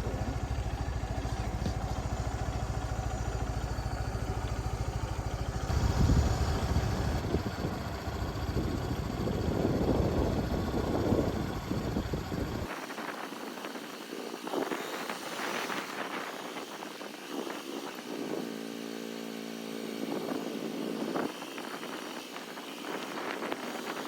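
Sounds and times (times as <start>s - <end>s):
motorcycle engine running: 0.0s - 12.7s
wind and road noise: 0.0s - 24.0s.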